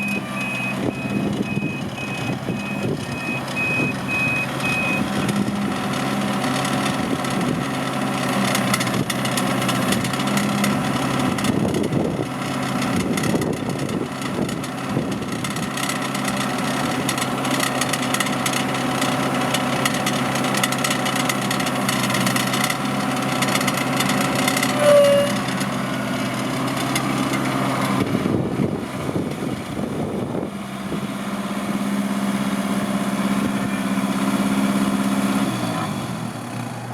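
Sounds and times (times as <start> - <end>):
tractor engine running: 0.0 - 36.9
brief high tone: 24.8 - 25.4.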